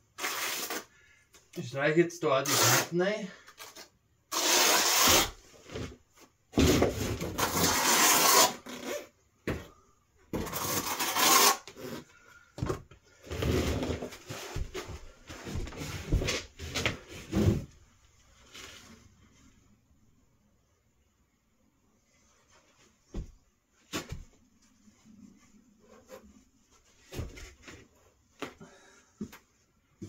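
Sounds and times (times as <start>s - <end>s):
rubbing and scraping strokes: 6.6s - 9.0s, 10.4s - 12.1s.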